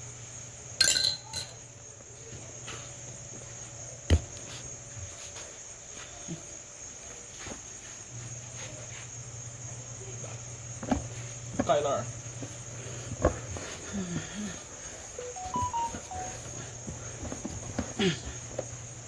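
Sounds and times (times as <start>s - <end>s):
crickets chirping: 0.0s - 19.0s
items clattering on a tabletop: 0.8s - 1.6s.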